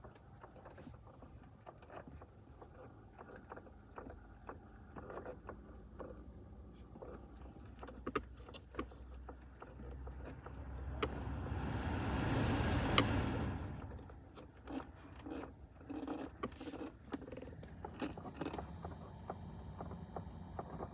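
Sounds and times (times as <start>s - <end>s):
clicking and knocking behind dashboard: 0.0s - 11.4s, 12.9s - 20.9s
low steady hum: 4.3s - 20.9s
rushing noise: 10.6s - 14.0s.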